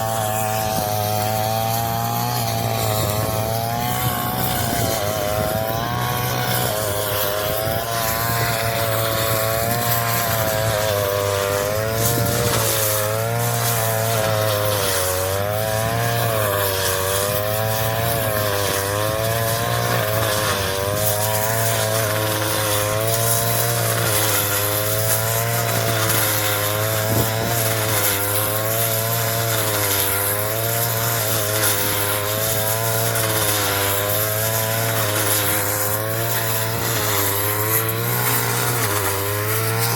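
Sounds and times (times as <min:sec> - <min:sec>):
straw chopper engine running: 0:00.0 - 0:39.9.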